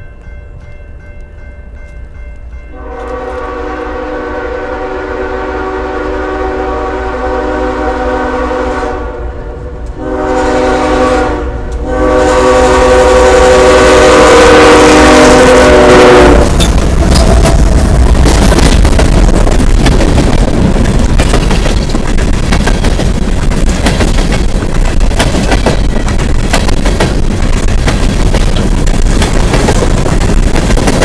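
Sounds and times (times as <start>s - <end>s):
low rumble of train: 0.0s - 31.0s
locomotive air horn blasts: 2.7s - 16.6s.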